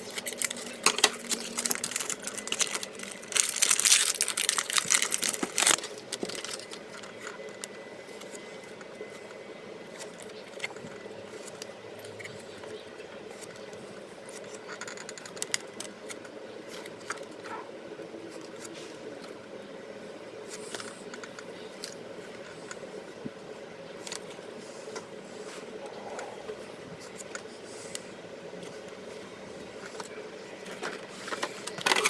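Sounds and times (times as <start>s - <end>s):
cards crinkling and clicking: 0.0s - 8.4s, 29.8s - 32.0s
steady background hum: 0.0s - 32.0s.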